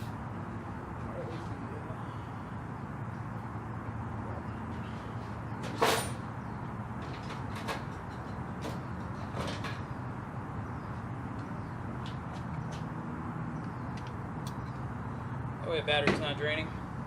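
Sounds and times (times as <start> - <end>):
steady low hum: 0.0 - 7.3.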